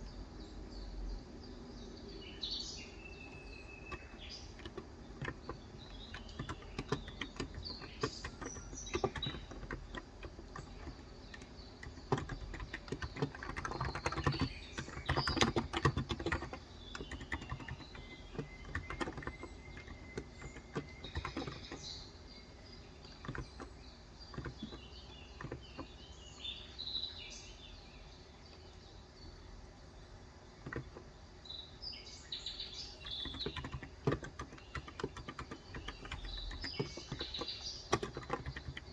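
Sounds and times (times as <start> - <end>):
birds chirping: 0.0 - 38.9
soft keyboard typing: 3.1 - 26.1, 30.6 - 31.2, 32.8 - 38.9.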